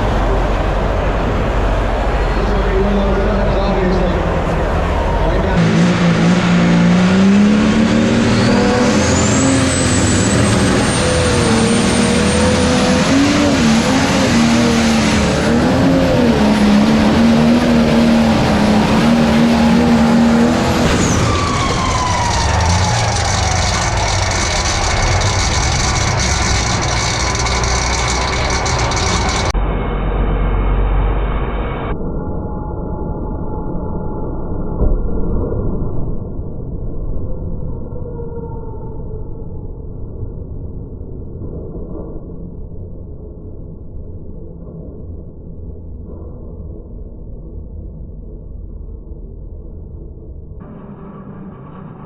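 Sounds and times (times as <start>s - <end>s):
tractor diesel engine under load: 0.0s - 29.6s.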